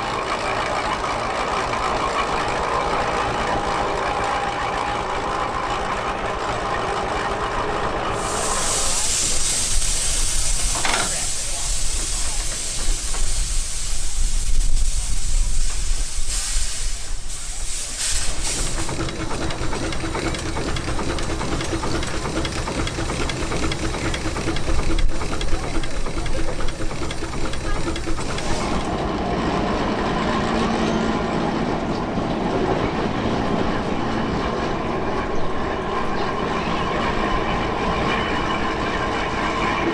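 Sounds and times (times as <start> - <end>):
railway train running: 0.0 - 39.9
loud hiss: 8.1 - 19.0.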